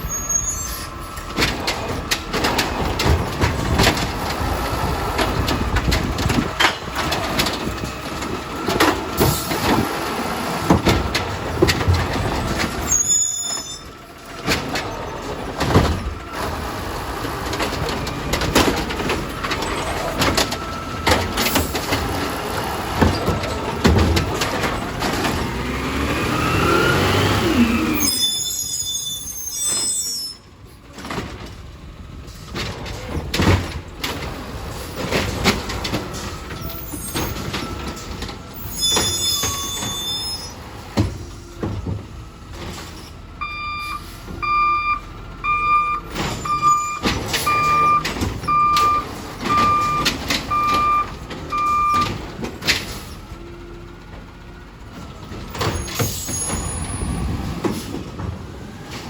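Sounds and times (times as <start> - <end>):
metal clanks and bangs: 0.0 - 25.9
garbage truck engine: 0.0 - 59.0
backup alarm beeping: 43.4 - 52.2.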